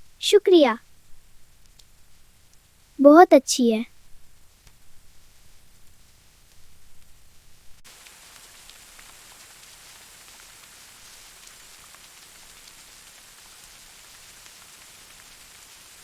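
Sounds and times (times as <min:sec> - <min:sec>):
steady rain: 0:07.8 - 0:16.0.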